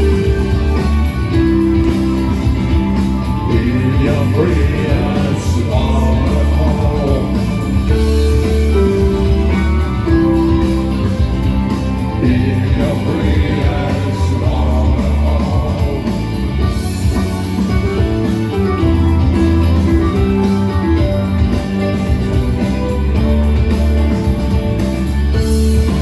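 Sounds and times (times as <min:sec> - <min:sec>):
person singing: 0:00.0 - 0:11.2, 0:12.0 - 0:17.3
live band playing: 0:00.0 - 0:26.0.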